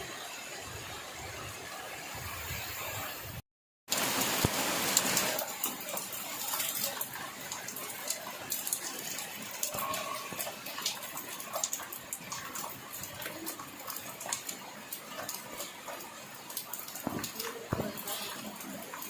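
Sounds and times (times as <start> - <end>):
rain falling: 3.9 - 19.0.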